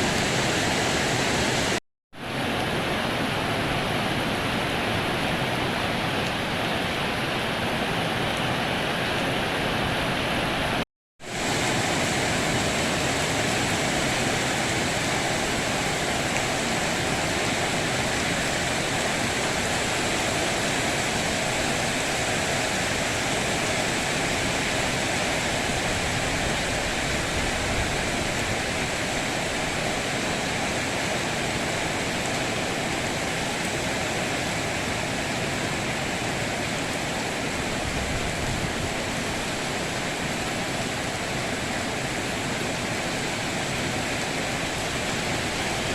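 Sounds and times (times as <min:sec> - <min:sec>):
heavy rain falling: 0:00.0 - 0:45.9.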